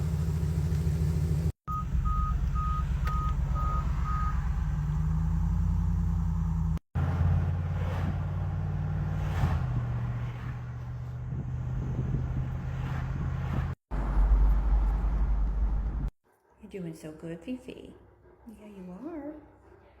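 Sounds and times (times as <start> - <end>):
car engine and road noise: 0.0 - 16.2
car warning beeps: 1.7 - 4.6.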